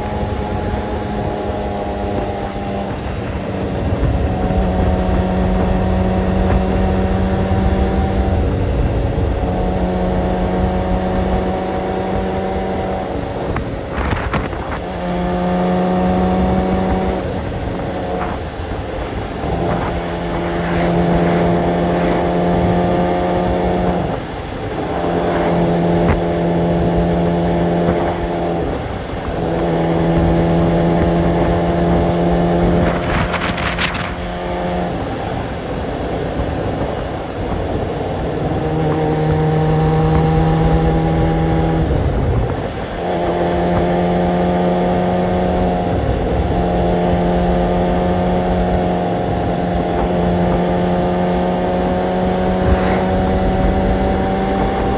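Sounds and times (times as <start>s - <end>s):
motorcycle engine running: 0.0s - 54.9s
wind rumble: 0.0s - 54.9s
short rushing sound: 18.2s - 26.9s, 52.4s - 54.2s.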